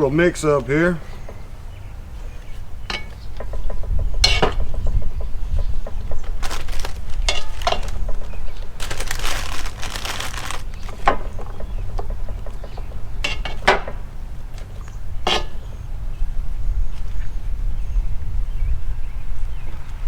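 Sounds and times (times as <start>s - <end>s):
rustling: 0.0s - 15.8s
spoon knocking and scraping pot: 2.9s - 6.1s, 15.3s - 15.6s.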